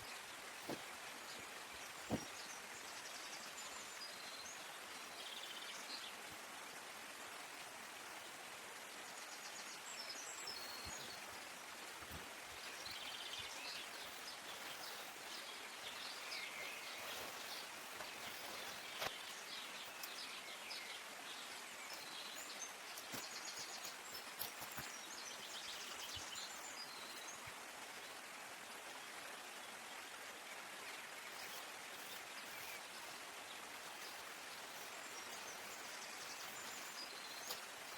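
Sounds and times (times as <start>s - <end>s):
falling water hissing: 10.5s - 28.8s, 30.6s - 37.9s
birds chirping and trilling: 12.0s - 27.5s, 30.9s - 37.9s.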